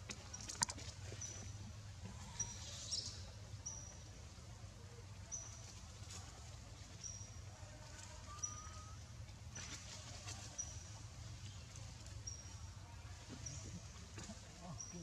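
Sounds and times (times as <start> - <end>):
low background hum: 0.0 - 15.0
bird chirp: 2.3 - 4.1.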